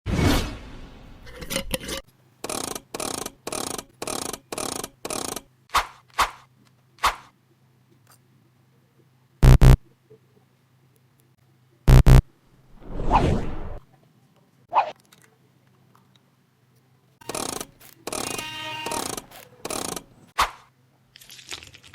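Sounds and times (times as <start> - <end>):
quick swishes: 5.7 - 7.3
loud synthetic beeps: 9.4 - 9.8, 11.9 - 12.2
short electronic pulses: 9.4 - 9.8, 11.9 - 12.2.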